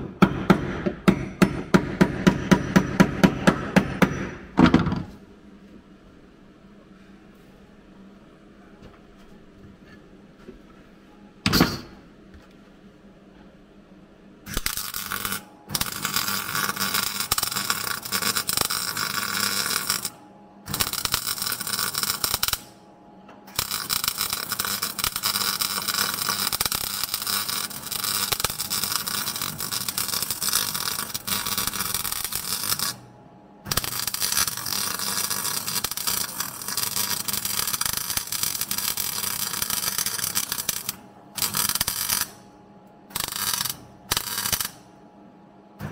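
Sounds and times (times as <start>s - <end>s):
welder arc crackling: 14.5s - 22.8s, 23.5s - 33.0s, 33.7s - 42.4s, 43.1s - 44.9s.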